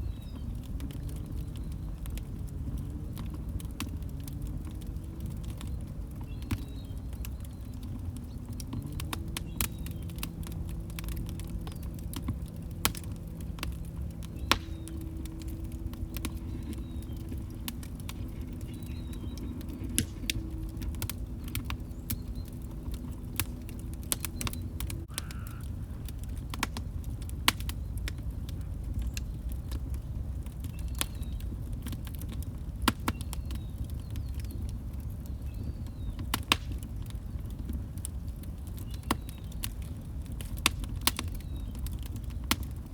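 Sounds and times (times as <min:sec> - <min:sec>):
low steady hum: 0:00.0 - 0:36.2
fire rumbling: 0:00.0 - 0:42.9
logs crackling and popping: 0:00.0 - 0:42.9.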